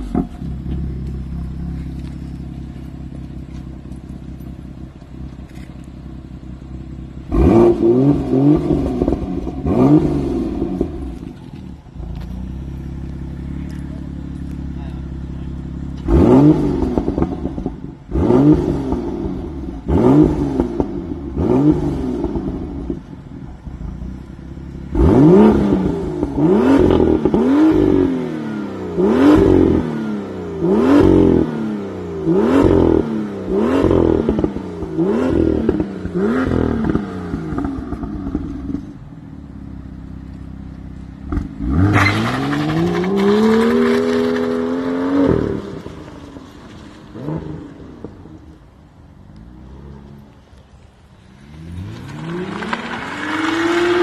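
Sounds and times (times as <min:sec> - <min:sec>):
car engine idling: 0:00.0 - 0:18.2, 0:33.4 - 0:41.6
car engine revving: 0:00.0 - 0:54.0
car pulling away: 0:00.0 - 0:54.0.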